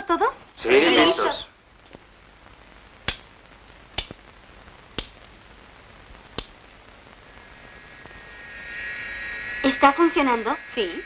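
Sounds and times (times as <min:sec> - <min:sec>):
faint electric buzz: 0:00.0 - 0:11.0
sharp clicks: 0:03.0 - 0:04.2, 0:04.9 - 0:05.4, 0:06.3 - 0:06.8.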